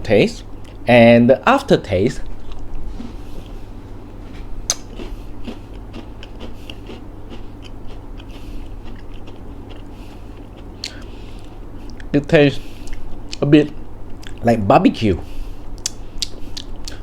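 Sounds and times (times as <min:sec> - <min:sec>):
person chewing crunchy snack: 0:02.2 - 0:03.6, 0:04.4 - 0:12.1, 0:12.7 - 0:14.4.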